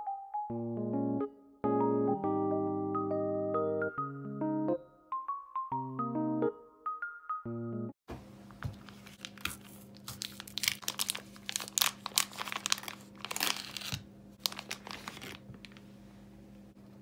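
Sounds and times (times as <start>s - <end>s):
material crinkling and rustling: 8.6s - 15.9s.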